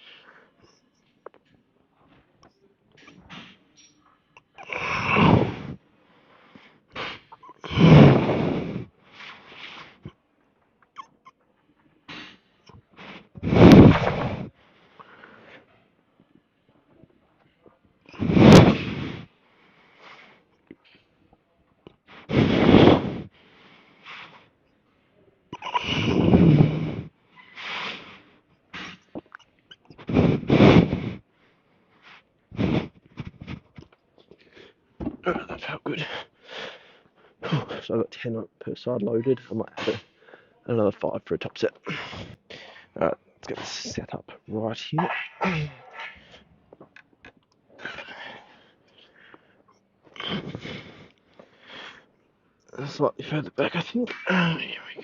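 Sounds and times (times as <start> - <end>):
man breathing hard: 4.6 - 10.2, 12.1 - 15.8, 18.1 - 20.6, 22.0 - 24.6, 25.8 - 29.3, 30.0 - 34.8, 36.0 - 37.8, 41.8 - 43.0, 47.7 - 52.2
man grunting: 45.0 - 46.2.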